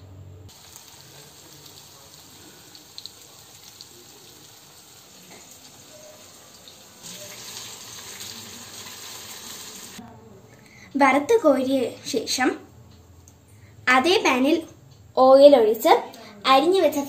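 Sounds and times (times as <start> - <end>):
food sizzling in hot oil: 0.5 - 10.0
oil crackling: 0.5 - 10.0.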